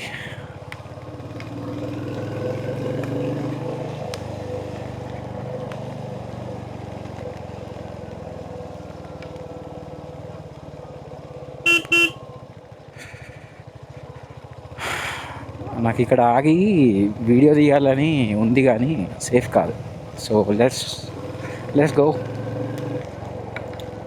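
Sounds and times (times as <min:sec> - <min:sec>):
motorcycle engine running: 0:00.2 - 0:24.0
short horn toots: 0:11.7 - 0:12.2.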